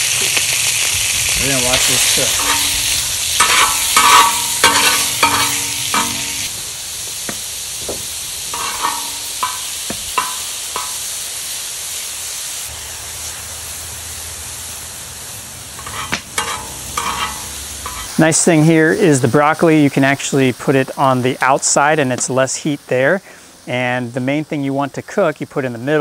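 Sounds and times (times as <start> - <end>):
beef sizzling in hot oil: 0.0 - 26.0
clinks and scrapes against wok: 1.8 - 6.6, 7.2 - 11.2, 15.7 - 18.2.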